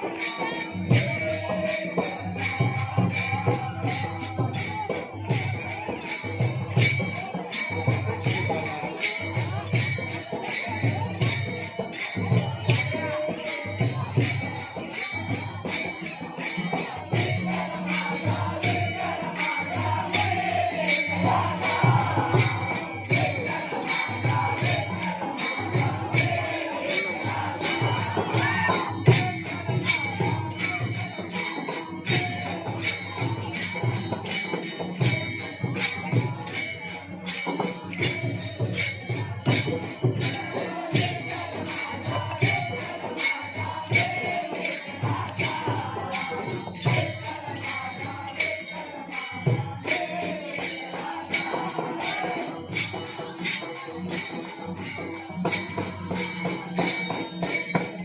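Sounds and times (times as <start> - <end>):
faint chanting voices: 0.0 - 58.0
hand cymbals clashing: 0.0 - 58.0
drum beat: 16.6 - 36.4, 37.7 - 48.3.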